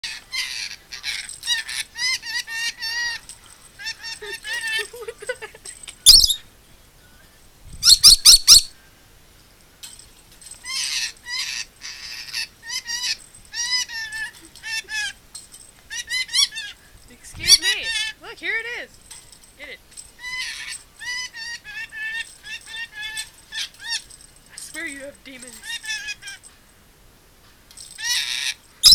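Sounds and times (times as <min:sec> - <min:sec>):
parrot shrill screeches: 0:00.0 - 0:04.9, 0:06.0 - 0:06.4, 0:07.8 - 0:08.8, 0:10.6 - 0:15.2, 0:15.9 - 0:16.9, 0:17.5 - 0:18.2, 0:20.2 - 0:24.7, 0:25.5 - 0:26.5, 0:27.9 - 0:28.9
parrot chattering: 0:00.0 - 0:06.4, 0:07.8 - 0:08.7, 0:10.6 - 0:15.2, 0:15.9 - 0:18.3, 0:19.6 - 0:26.5, 0:28.0 - 0:28.9.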